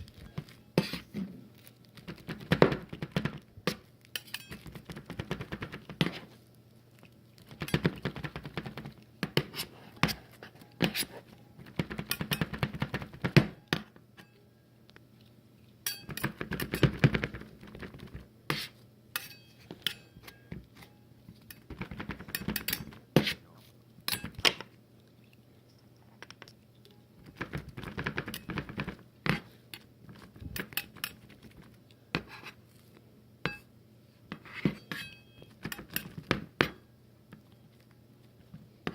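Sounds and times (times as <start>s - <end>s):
faint low hum: 0.0s - 38.9s
utensils clinking against plate: 4.1s - 4.8s, 15.8s - 17.0s, 19.2s - 23.4s, 24.1s - 24.6s, 30.5s - 31.4s, 34.5s - 36.2s.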